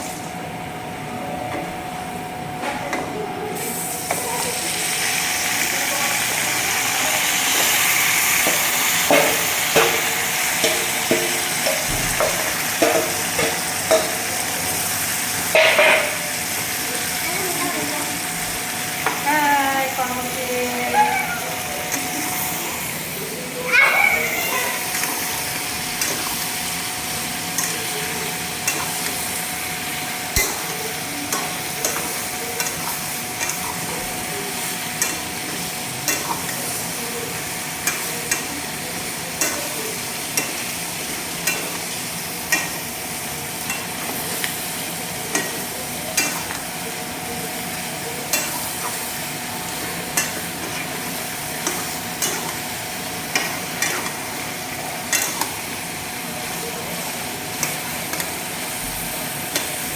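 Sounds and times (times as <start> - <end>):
curry sizzling in a pan: 3.6 - 59.9
spatula clacking against pan: 39.4 - 42.9, 48.3 - 54.2, 55.1 - 55.6.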